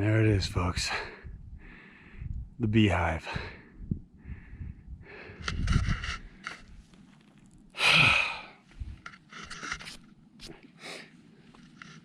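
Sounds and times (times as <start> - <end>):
person breathing hard: 1.0 - 2.4, 3.3 - 6.3, 7.8 - 8.8
scuffs and clicks: 8.7 - 10.7.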